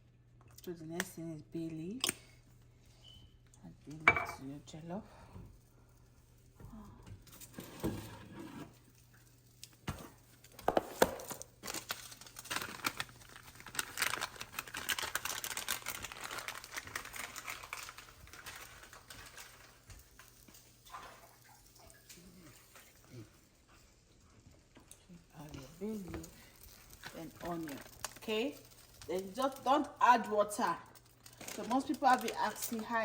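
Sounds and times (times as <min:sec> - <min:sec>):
plastic packet crinkling: 0:10.3 - 0:20.8, 0:25.5 - 0:33.0
dry leaves crinkling: 0:11.1 - 0:20.4, 0:25.8 - 0:29.6.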